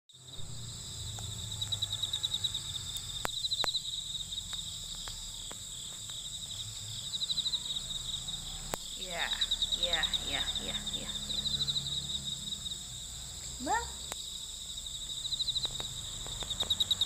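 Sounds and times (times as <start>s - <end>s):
crickets chirping: 0.1s - 17.0s
low hum: 0.2s - 5.6s
sharp clicks: 15.5s - 17.0s.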